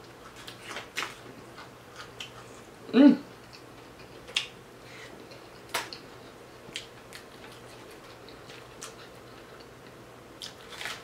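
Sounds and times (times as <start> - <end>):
crisp chewing crunches: 0.2 - 2.5, 5.2 - 9.8, 10.4 - 11.0.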